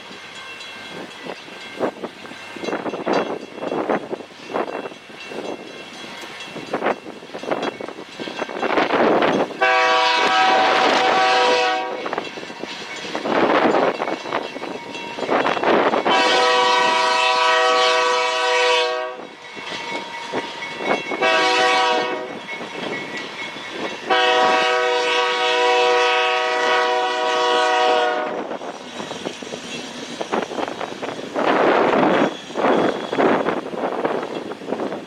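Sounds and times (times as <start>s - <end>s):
train running noise: 0.0s - 35.0s
locomotive air horn blasts: 9.6s - 12.2s, 16.0s - 19.4s, 21.2s - 22.4s, 24.1s - 28.5s.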